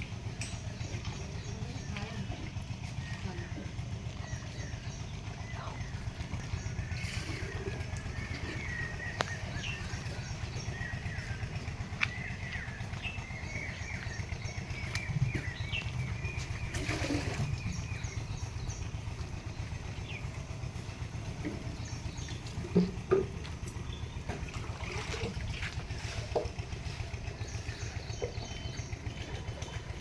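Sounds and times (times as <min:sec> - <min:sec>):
small birds chirping: 0:00.0 - 0:30.0
steady low rumble: 0:00.0 - 0:30.0.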